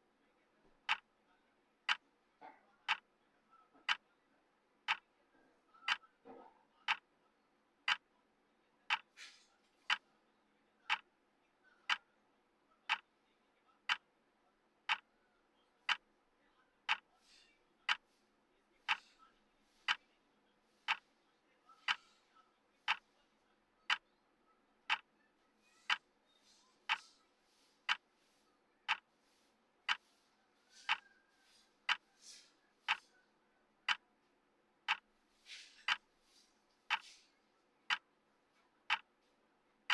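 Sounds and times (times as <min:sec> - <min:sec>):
clock ticking: 0:00.8 - 0:01.1, 0:01.8 - 0:02.1, 0:02.9 - 0:03.1, 0:03.8 - 0:04.0, 0:04.8 - 0:05.0, 0:05.8 - 0:06.1, 0:06.8 - 0:07.1, 0:07.8 - 0:08.1, 0:08.9 - 0:09.2, 0:11.9 - 0:12.1, 0:13.8 - 0:14.1, 0:14.8 - 0:15.1, 0:15.9 - 0:16.1, 0:16.9 - 0:17.1, 0:17.8 - 0:18.1, 0:18.8 - 0:19.2, 0:19.8 - 0:20.0, 0:20.8 - 0:21.1, 0:21.8 - 0:22.2, 0:22.8 - 0:23.1, 0:23.9 - 0:24.1, 0:24.9 - 0:25.1, 0:25.8 - 0:26.1, 0:26.8 - 0:28.2, 0:28.8 - 0:29.2, 0:29.8 - 0:33.1, 0:33.8 - 0:34.1, 0:34.8 - 0:37.3, 0:37.9 - 0:38.1, 0:38.8 - 0:39.2.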